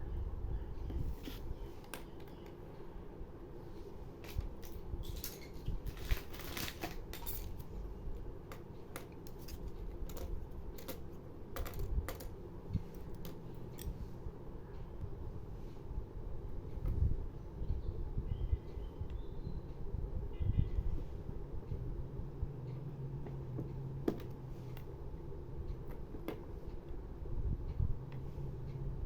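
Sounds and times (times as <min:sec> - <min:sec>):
small objects clicking and tapping: 0:01.8 - 0:02.6, 0:08.4 - 0:14.0.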